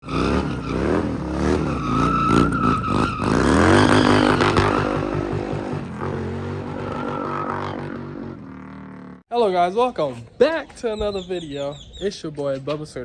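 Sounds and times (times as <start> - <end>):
motorcycle engine revving and idling: 0.0 - 9.2.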